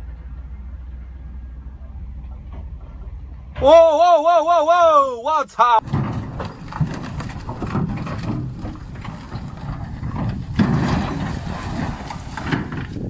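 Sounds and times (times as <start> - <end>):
truck engine rumbling: 0.0 - 13.0
knocks and rattles: 5.8 - 13.0.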